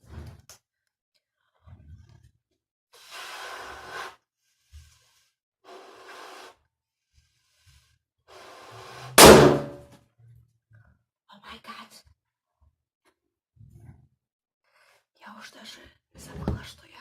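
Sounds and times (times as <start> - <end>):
balloon bursting bang: 9.2 - 9.8.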